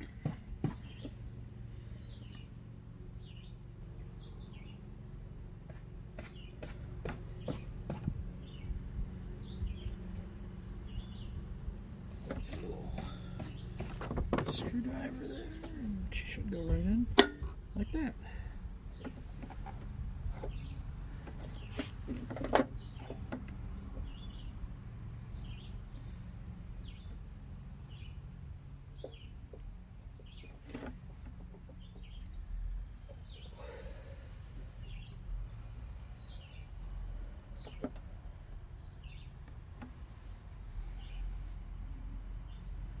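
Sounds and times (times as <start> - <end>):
low steady hum: 0.0 - 43.0
bird chirping: 0.6 - 1.3, 3.2 - 4.9, 8.4 - 16.7, 20.2 - 22.0, 22.7 - 24.6, 25.2 - 26.2, 26.8 - 28.2, 28.9 - 29.4, 31.6 - 36.9, 38.8 - 39.4.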